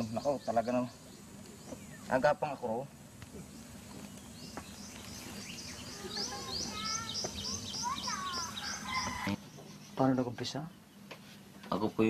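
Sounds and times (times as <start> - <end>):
low bird warbling: 3.4 - 11.0.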